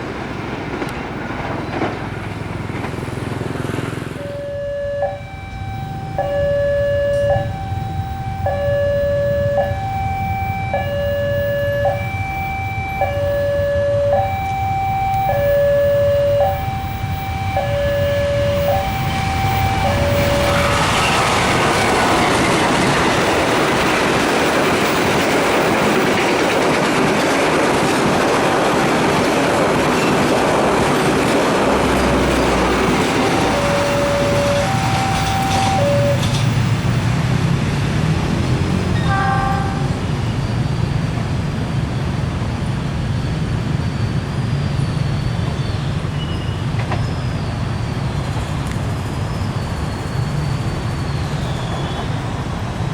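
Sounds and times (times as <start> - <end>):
high whine of wheels: 0.0 - 52.9
rush of rail noise: 0.0 - 52.9
train rumble: 0.0 - 52.9
two-tone train horn blasts: 4.2 - 10.0, 10.8 - 22.3, 32.3 - 36.3, 39.0 - 40.1.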